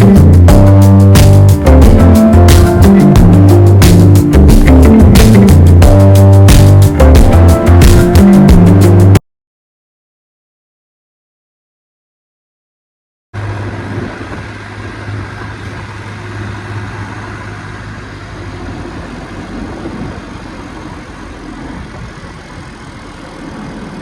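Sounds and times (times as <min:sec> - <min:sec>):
tractor diesel engine running: 0:00.0 - 0:09.1, 0:13.4 - 0:24.0.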